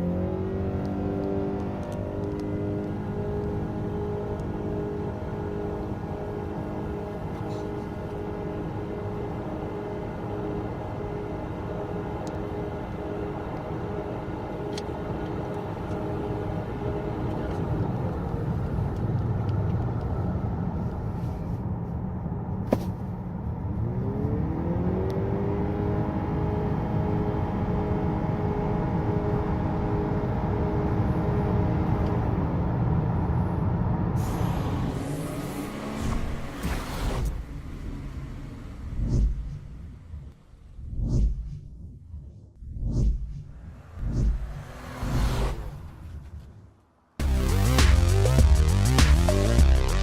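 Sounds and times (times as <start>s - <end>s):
road and tyre rumble: 0.0s - 50.0s
car engine winding up: 34.2s - 40.5s.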